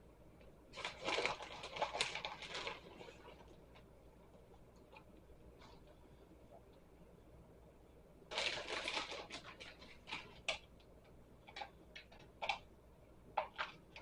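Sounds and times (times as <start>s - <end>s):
small clicks and taps: 9.4s - 12.7s.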